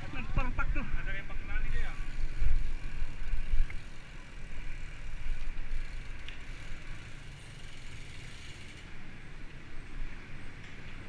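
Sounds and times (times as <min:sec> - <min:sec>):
wind rumble on microphone: 0:00.0 - 0:05.9.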